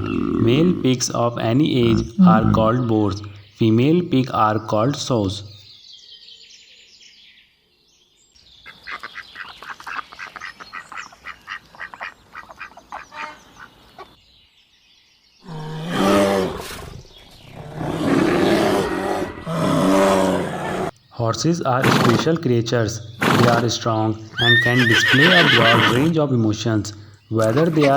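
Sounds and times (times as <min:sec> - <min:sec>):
pigs grunting and squealing: 0:00.0 - 0:03.0, 0:15.5 - 0:20.9, 0:21.8 - 0:22.4, 0:23.2 - 0:26.2, 0:27.3 - 0:27.9.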